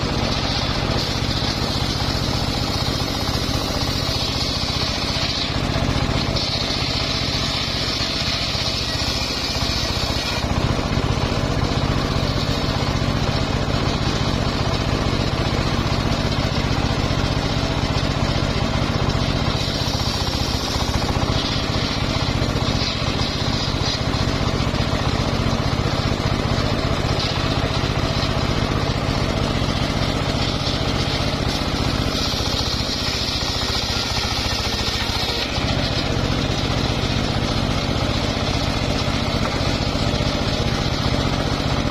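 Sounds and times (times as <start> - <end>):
saw blade whining: 0.0 - 41.9
sawmill engine running: 0.0 - 41.9.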